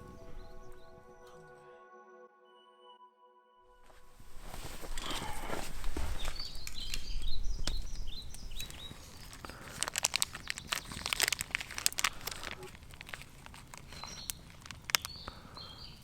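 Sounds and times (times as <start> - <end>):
dry crackling clicks: 4.8 - 16.0
small bird chirping: 5.0 - 16.0.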